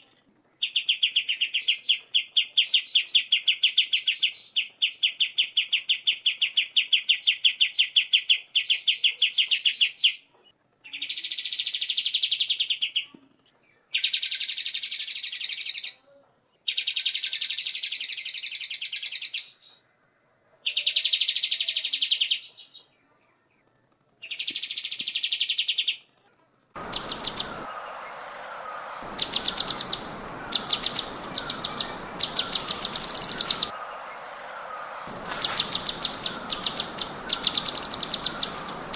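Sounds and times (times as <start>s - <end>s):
songbird buzzy trills: 26.8s - 38.9s
steady hiss: 26.8s - 38.9s.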